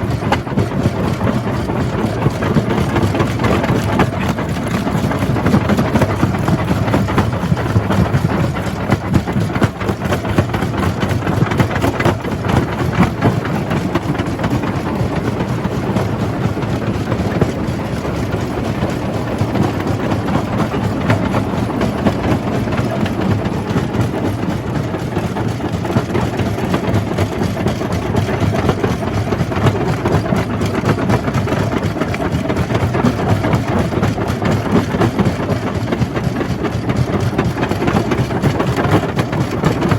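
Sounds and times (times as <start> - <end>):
rock crusher running: 0.0 - 39.9.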